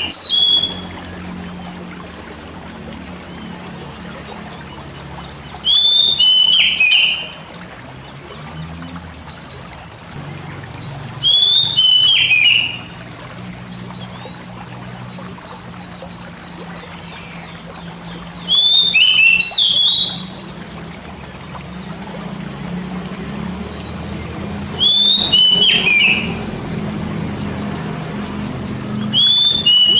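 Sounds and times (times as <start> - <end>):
bird singing whistled notes: 0.0 - 1.1, 5.5 - 7.4, 11.2 - 12.9, 18.1 - 20.5, 24.7 - 26.4, 29.0 - 29.9.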